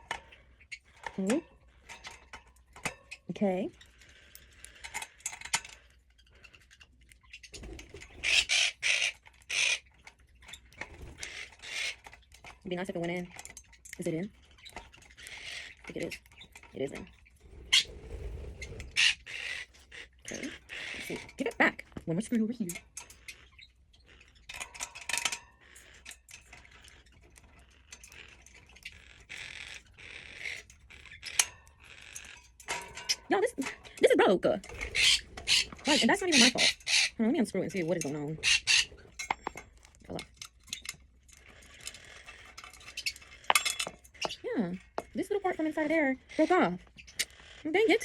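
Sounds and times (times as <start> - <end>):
parrot squawking: 7.7 - 10.0, 11.0 - 12.1, 15.0 - 21.8, 28.7 - 32.4, 33.0 - 39.1, 42.9 - 48.0
scraping rub: 17.4 - 20.1.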